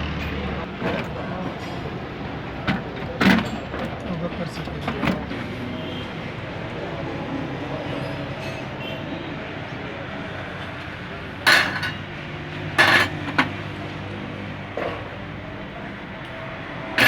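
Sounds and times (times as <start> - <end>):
metal tools clinking: 11.5 - 12.0, 12.8 - 13.6.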